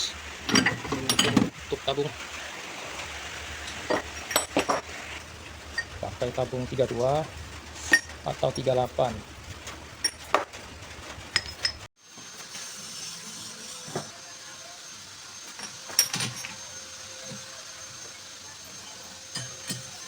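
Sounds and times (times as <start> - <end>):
metal parts clinking: 3.7 - 4.8, 11.4 - 11.9, 15.6 - 16.6.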